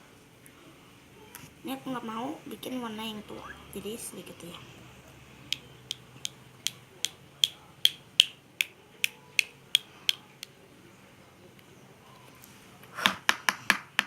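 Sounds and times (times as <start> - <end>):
sharp evenly spaced clicks: 5.5 - 10.5.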